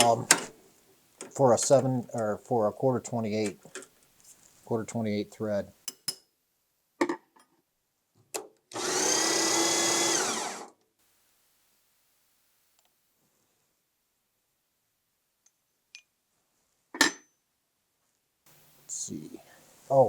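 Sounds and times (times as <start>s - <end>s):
power tool running: 8.7s - 10.8s.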